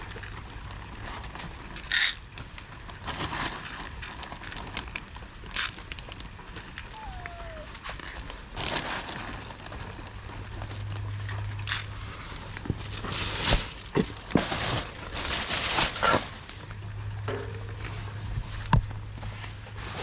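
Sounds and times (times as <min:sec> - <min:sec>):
rustling and crinkling: 0:00.0 - 0:20.0
steady low hum: 0:09.9 - 0:20.0.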